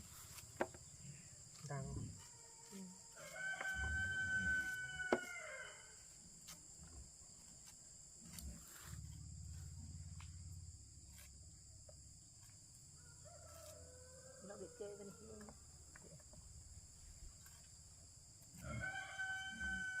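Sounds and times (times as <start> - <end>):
insects droning: 0.0 - 20.0
rooster crowing: 3.1 - 6.0, 13.0 - 15.4, 18.6 - 20.0.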